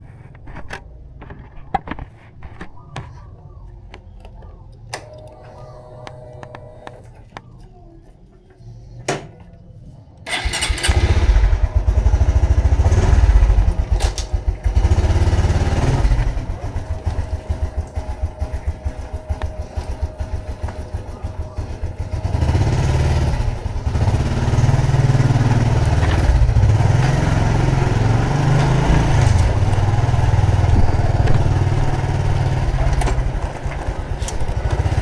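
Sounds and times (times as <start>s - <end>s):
motorcycle engine running: 10.3s - 35.0s.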